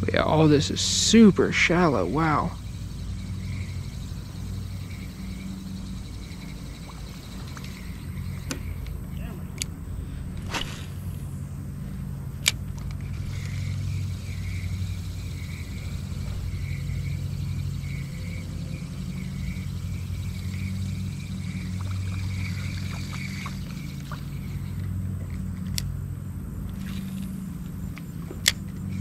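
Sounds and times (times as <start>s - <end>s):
electric motor humming: 2.0s - 29.0s
light ticks: 21.6s - 26.0s.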